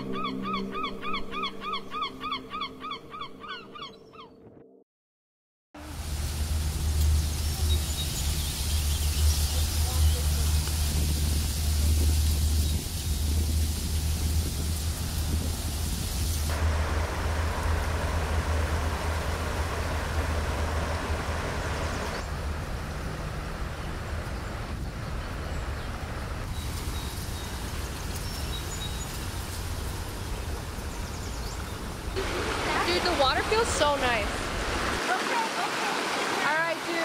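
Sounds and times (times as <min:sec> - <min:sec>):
rushing creek water: 0:05.8 - 0:24.7, 0:26.4 - 0:37.0.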